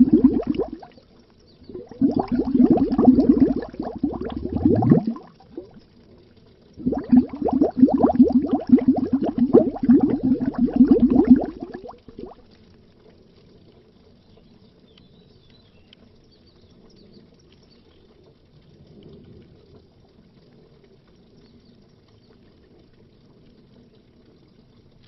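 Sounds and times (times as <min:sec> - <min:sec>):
underwater bubbling: 0:00.0 - 0:14.2.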